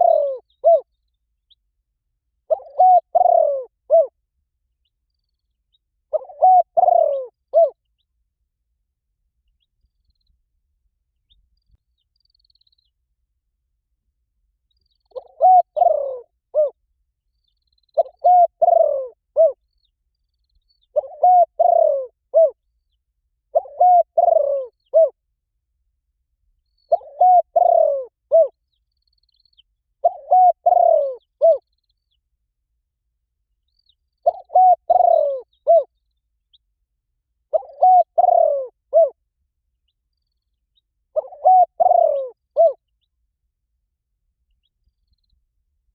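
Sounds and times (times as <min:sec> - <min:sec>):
dove cooing: 0:00.0 - 0:00.9, 0:02.5 - 0:04.2, 0:06.1 - 0:07.8, 0:15.1 - 0:16.8, 0:18.0 - 0:19.6, 0:20.9 - 0:22.6, 0:23.5 - 0:25.2, 0:26.9 - 0:28.6, 0:30.0 - 0:31.6, 0:34.2 - 0:35.9, 0:37.5 - 0:39.2, 0:41.1 - 0:42.8.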